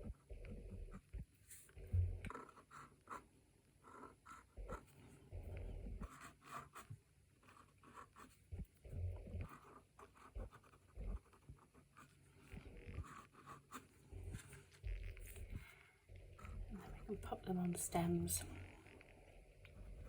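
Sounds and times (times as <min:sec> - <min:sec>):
pen scratching on card: 0:02.3 - 0:03.2, 0:05.8 - 0:15.7.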